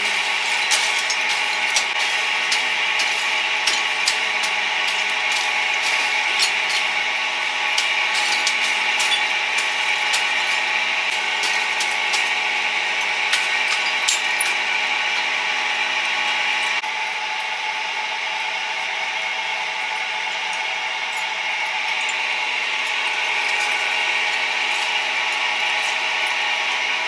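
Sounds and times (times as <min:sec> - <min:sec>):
sharp clicks and clatter: 0:00.0 - 0:15.3
mechanical hum with tones: 0:00.0 - 0:27.0.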